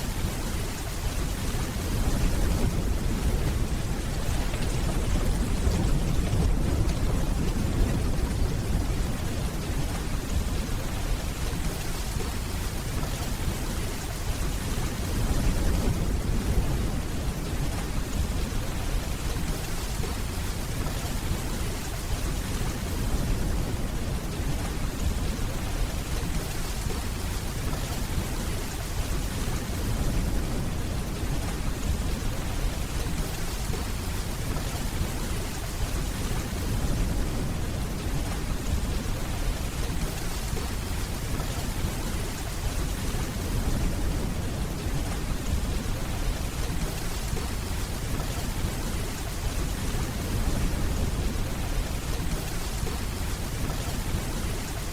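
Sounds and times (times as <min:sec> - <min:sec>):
steady rainfall: 0:00.0 - 0:54.9
distant thunder rumble: 0:01.7 - 0:12.4.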